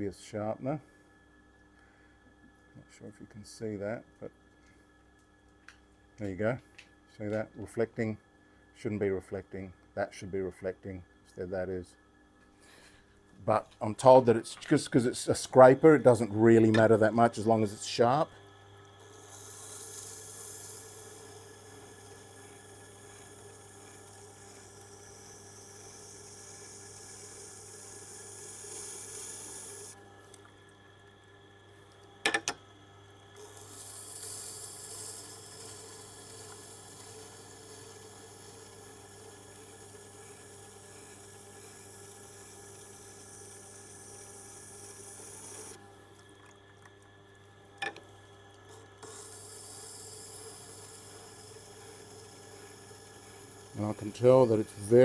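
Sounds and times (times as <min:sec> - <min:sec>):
steel hissing on wet grindstone: 0:19.0 - 0:30.0, 0:49.0 - 0:55.0.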